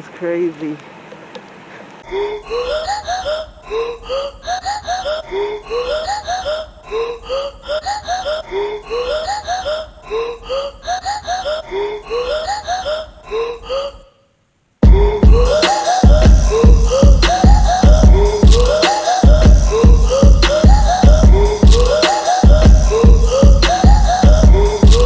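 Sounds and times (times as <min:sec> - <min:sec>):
looped rising vocal-like notes: 0:14.8 - 0:25.0.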